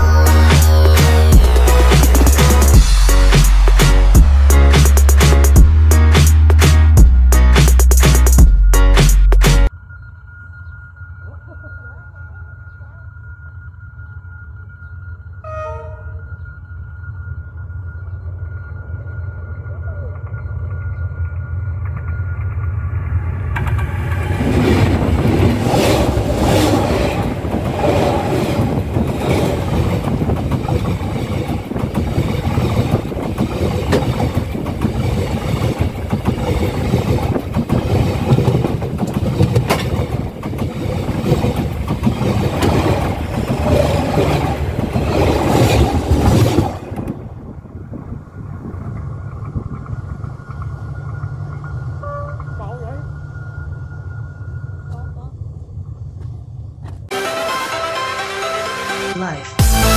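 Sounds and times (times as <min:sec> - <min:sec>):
train wheels clacking on rails: 0:23.5 - 0:47.3.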